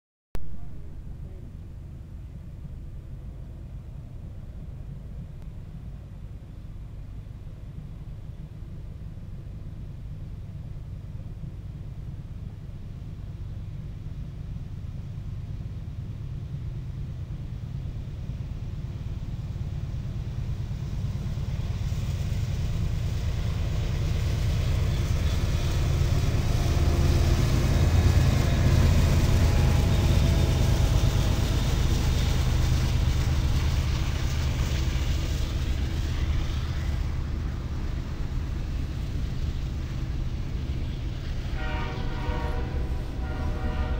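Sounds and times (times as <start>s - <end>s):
locomotive engine rumble: 0.4s - 43.9s
train cars rolling past: 0.6s - 43.9s.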